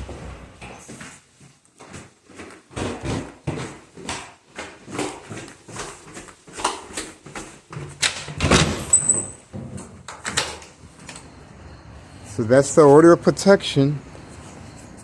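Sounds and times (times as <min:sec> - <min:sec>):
footsteps: 0:00.0 - 0:08.0.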